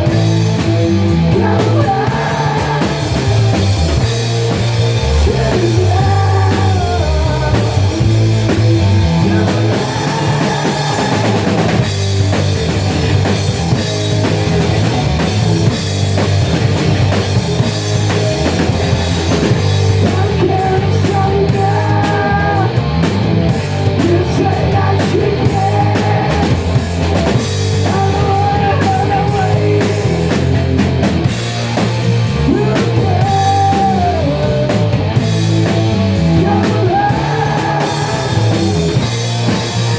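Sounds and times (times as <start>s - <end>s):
rock music: 0.0s - 39.9s
person singing: 1.2s - 3.4s, 5.0s - 8.1s, 8.9s - 11.8s, 20.0s - 22.8s, 23.9s - 26.7s, 27.8s - 30.1s, 32.4s - 35.0s, 36.2s - 39.2s.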